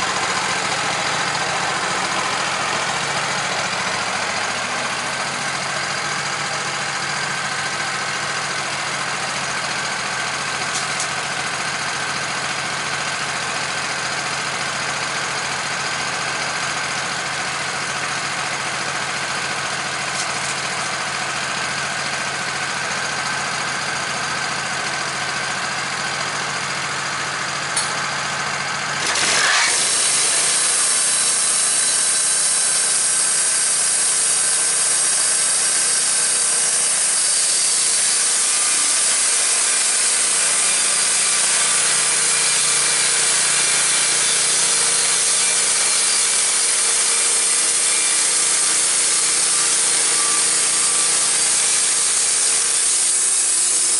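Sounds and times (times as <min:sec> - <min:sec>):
sawmill engine running: 0:00.0 - 0:53.9
band blade sawing into log: 0:29.0 - 0:53.9.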